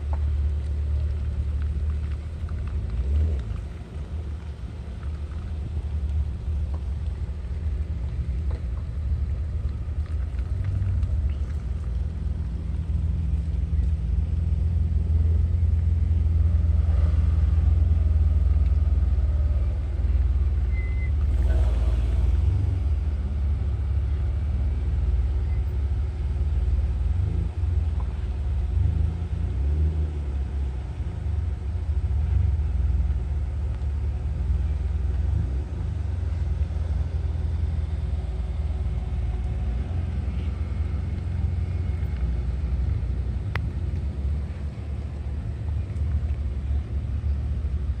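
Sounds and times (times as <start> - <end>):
loud low rumble: 1.0 - 25.6.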